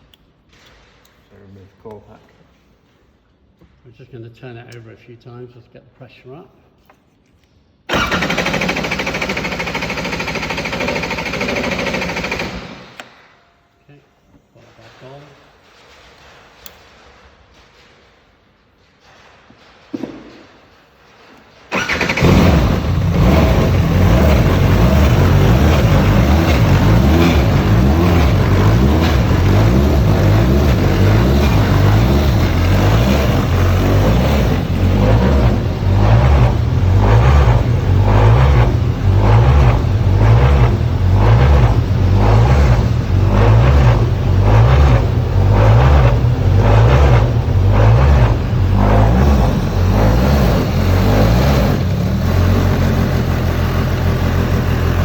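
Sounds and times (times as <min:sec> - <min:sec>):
race car engine idling: 0:21.7 - 0:55.0.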